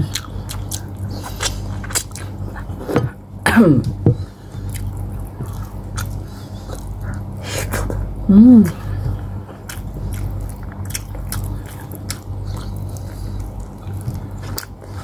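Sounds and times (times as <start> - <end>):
wet chewing mouth sounds: 0.0 - 3.2, 3.9 - 8.1, 9.1 - 15.0
person humming: 7.4 - 9.2.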